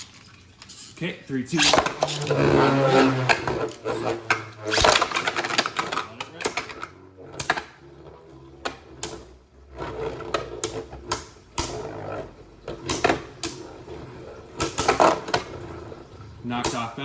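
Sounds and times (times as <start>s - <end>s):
spinning tops whirring: 0.0s - 17.0s
spinning tops clashing: 4.0s - 6.9s.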